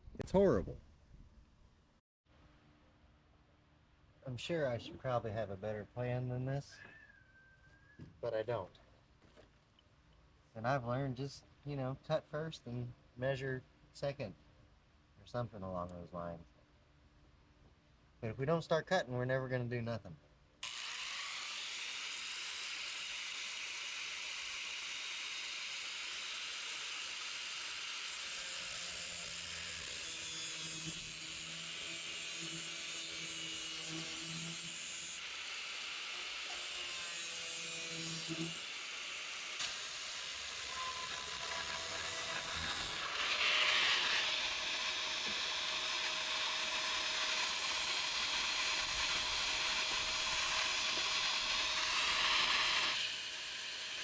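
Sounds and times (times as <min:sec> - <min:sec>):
power tool cutting sheet metal: 0:20.6 - 0:54.0.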